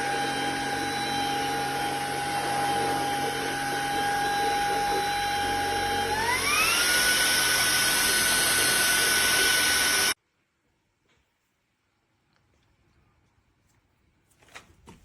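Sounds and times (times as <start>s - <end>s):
vacuum motor whining: 0.0s - 10.2s.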